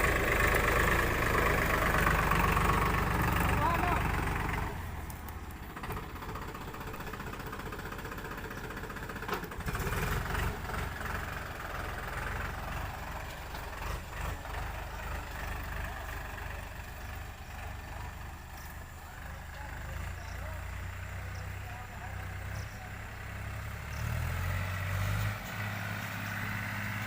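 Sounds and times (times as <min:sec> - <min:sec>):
tractor diesel engine rumbling: 0:00.0 - 0:27.0.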